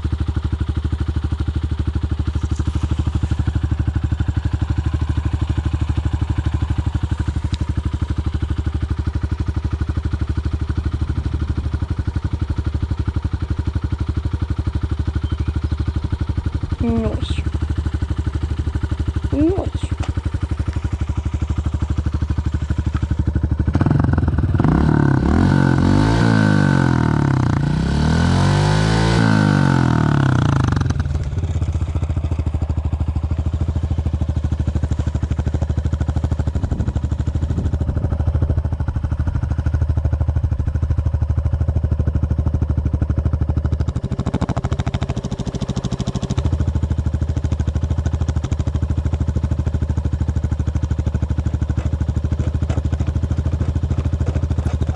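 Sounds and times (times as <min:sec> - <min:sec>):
dirt bike engine revving: 0:23.6 - 0:31.2, 0:51.3 - 0:54.9.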